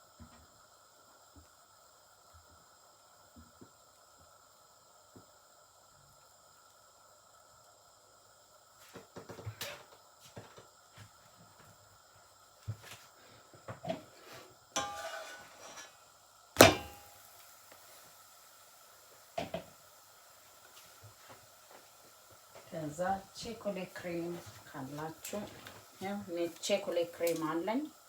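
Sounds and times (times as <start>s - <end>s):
rustling scrape: 14.2s - 16.0s
loud sharp knock: 16.6s - 17.0s.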